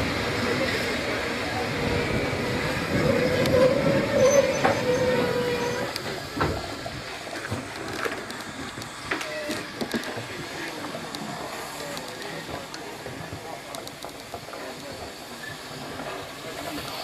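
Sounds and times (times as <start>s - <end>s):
train rumbling on track: 0.0s - 17.0s
train wheel squeal: 1.8s - 6.2s, 14.8s - 16.9s.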